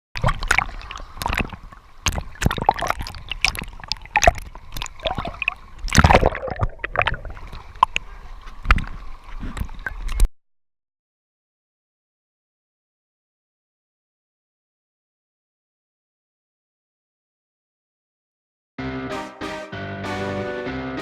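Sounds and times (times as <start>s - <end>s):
water splashing and gurgling: 0.2s - 10.3s.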